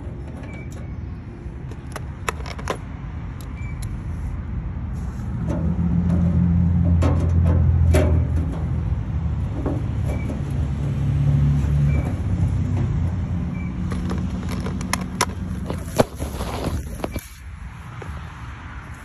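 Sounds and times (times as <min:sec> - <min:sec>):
sharp clicks and knocks: 0:01.6 - 0:04.0, 0:05.4 - 0:11.0, 0:11.6 - 0:17.2.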